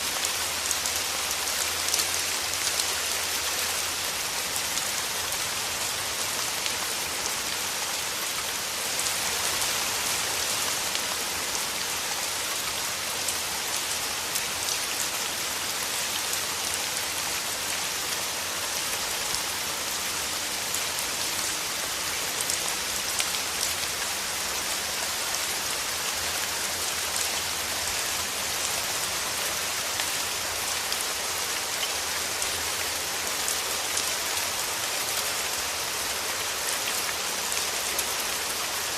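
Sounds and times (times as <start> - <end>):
rain on leaves: 0.0 - 38.9.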